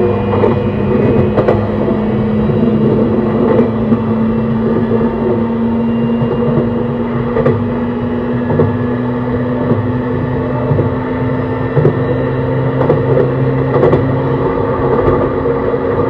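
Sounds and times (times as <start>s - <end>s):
electric train motor whine: 0.0s - 16.0s
wheels clacking over rail joints: 9.5s - 16.0s.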